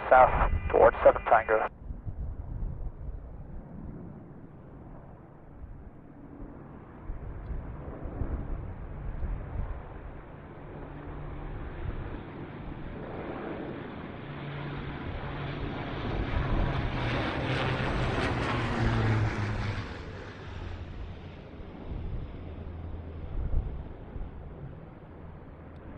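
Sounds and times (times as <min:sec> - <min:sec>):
jet engine roar passing by: 0:00.0 - 0:01.7, 0:16.1 - 0:23.3.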